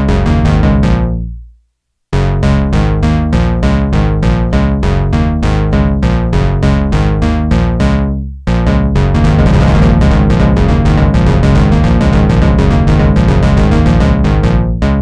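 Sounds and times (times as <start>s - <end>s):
synthesizer plucky sequenced notes: 0.0s - 1.4s, 2.4s - 15.0s
deep synth bass: 0.0s - 1.5s, 2.2s - 15.0s.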